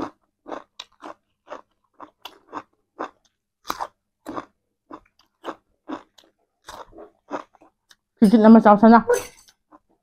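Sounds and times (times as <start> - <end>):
chewing crisp cucumber crunches: 0.0 - 8.1.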